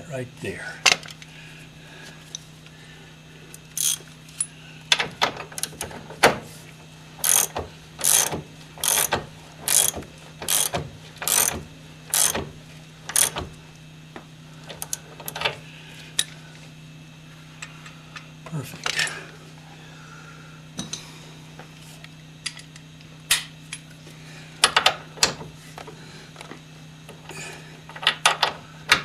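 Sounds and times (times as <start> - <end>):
ratchet wrench clicking: 3.7 - 4.0, 7.2 - 9.1, 9.7 - 12.4, 13.1 - 13.4.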